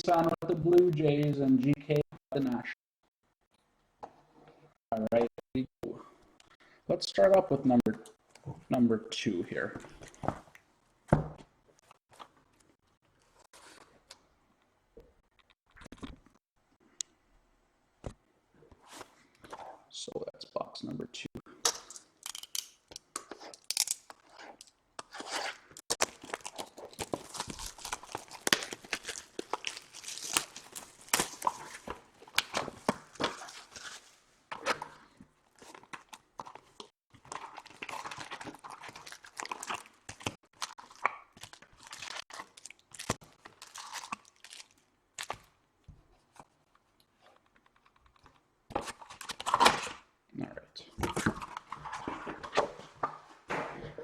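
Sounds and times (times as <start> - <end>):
wrappers tearing and crinkling: 25.2 - 34.1, 37.2 - 45.4.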